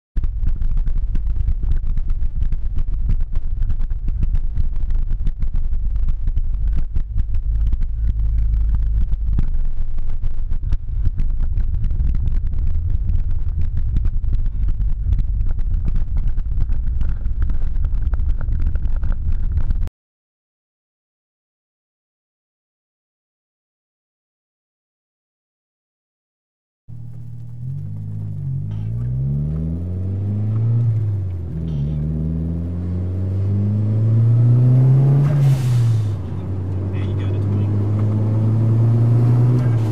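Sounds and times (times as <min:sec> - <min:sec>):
crackling static: 0:00.2 - 0:19.9, 0:26.9 - 0:32.2, 0:36.2 - 0:38.1
low booming rumble: 0:00.2 - 0:19.9, 0:26.9 - 0:39.9.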